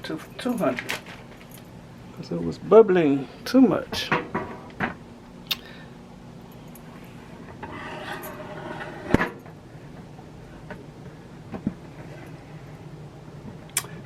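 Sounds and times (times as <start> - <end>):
steady low hum: 0.0 - 14.0
cookware scraping: 7.6 - 9.2.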